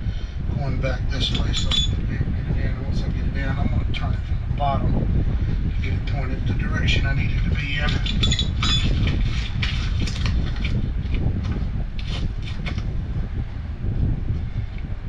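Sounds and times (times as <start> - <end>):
steady low rumble: 0.0 - 15.0
metallic clinks and scrapes of tools: 1.3 - 2.0, 7.8 - 10.7.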